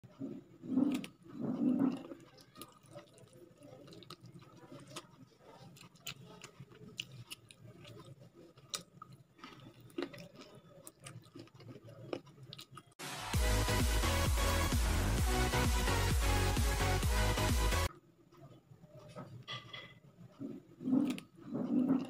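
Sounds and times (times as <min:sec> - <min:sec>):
person chewing: 0:00.1 - 0:13.0, 0:20.3 - 0:22.0.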